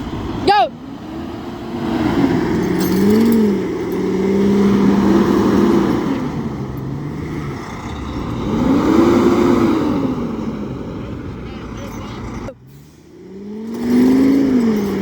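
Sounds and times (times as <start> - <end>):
vehicle engines revving: 0.0 - 15.0.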